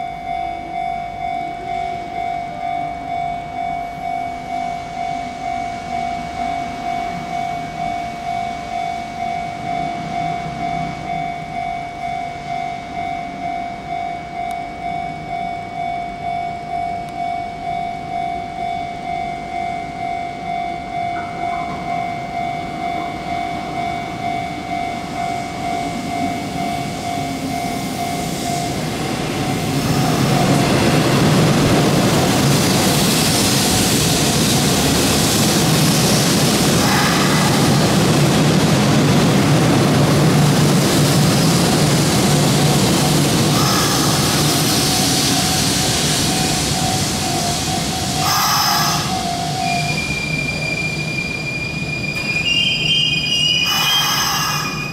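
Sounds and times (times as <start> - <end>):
electric train running noise: 0.0 - 54.9
electronic warning bell ringing: 42.5 - 44.8, 46.4 - 50.2, 52.5 - 54.9.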